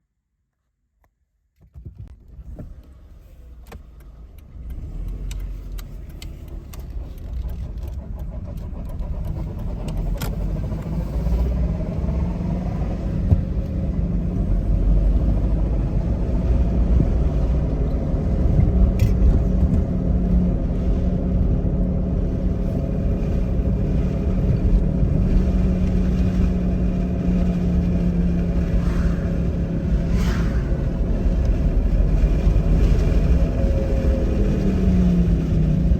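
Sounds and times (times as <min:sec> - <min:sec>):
car driving with low rumble: 0:01.6 - 0:35.9.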